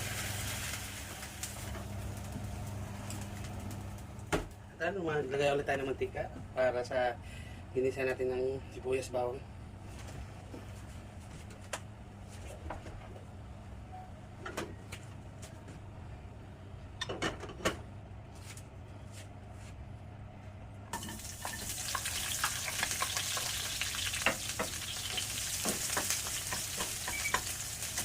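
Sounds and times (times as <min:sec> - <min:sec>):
food sizzling in hot oil: 0:00.0 - 0:03.2, 0:20.9 - 0:28.0.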